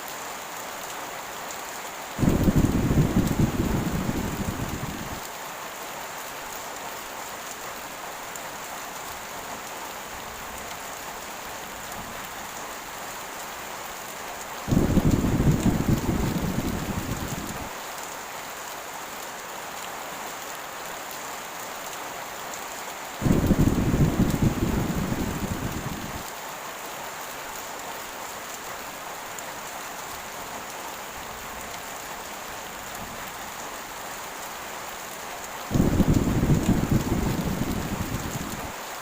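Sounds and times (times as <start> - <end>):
heavy rain hissing: 1.6 - 5.7, 6.4 - 18.0, 23.0 - 26.6, 27.3 - 39.0
deep thunder rumbles: 2.2 - 5.2, 14.7 - 17.7, 23.2 - 26.2, 35.7 - 38.7.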